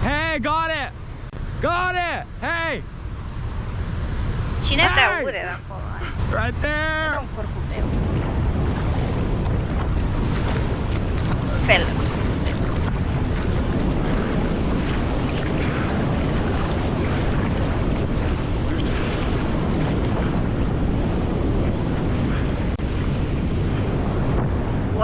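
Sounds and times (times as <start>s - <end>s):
waterfall roaring: 4.6s - 12.7s.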